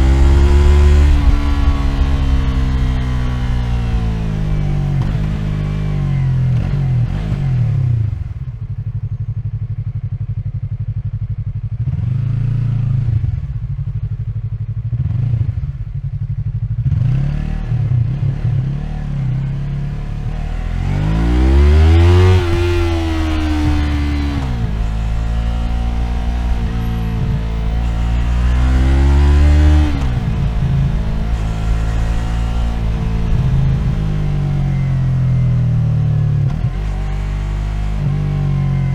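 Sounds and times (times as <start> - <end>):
motorcycle engine revving and idling: 0.0 - 38.9.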